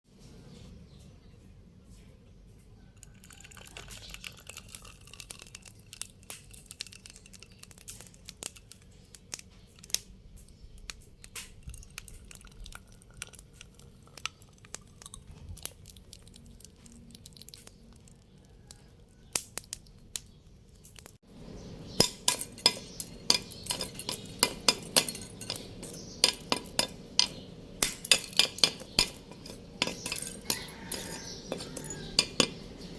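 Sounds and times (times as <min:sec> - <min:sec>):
hand tools clinking on metal: 0:22.0 - 0:32.9.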